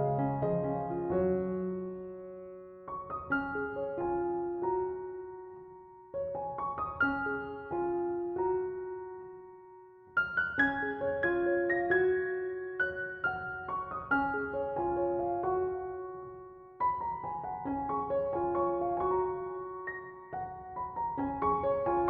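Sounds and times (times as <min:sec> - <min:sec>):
soft solo piano: 0:00.0 - 0:22.0.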